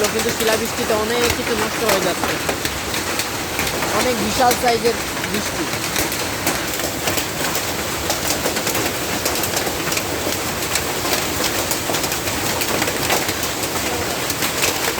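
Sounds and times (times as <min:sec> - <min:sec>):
heavy rain hissing: 0:00.0 - 0:09.4
hailstones clattering: 0:00.0 - 0:14.9.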